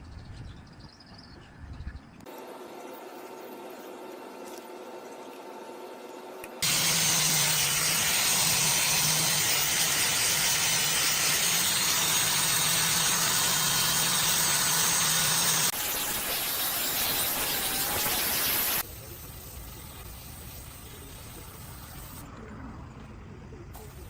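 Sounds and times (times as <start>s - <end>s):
machine running with loud hiss: 6.6s - 22.3s, 23.8s - 24.0s.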